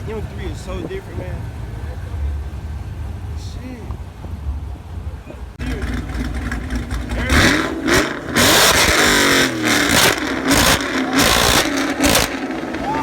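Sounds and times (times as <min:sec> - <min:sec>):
car engine revving: 0:00.0 - 0:13.0
loud exhaust noise: 0:05.6 - 0:13.0.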